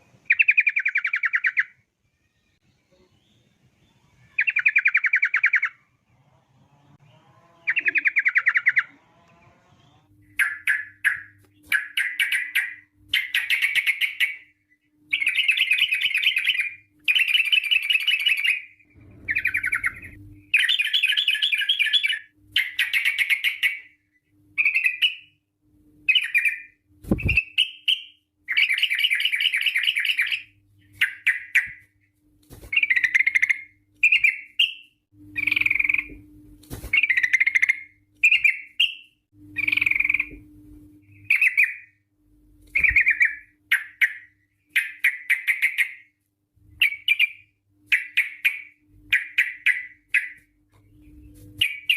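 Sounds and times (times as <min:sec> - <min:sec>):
bird singing chattering trills: 0:37.0 - 0:40.3.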